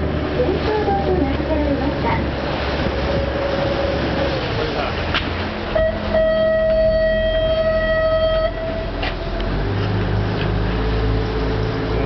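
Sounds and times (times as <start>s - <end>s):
boat engine rumbling: 0.0s - 12.0s
boat horn blast: 5.6s - 10.1s.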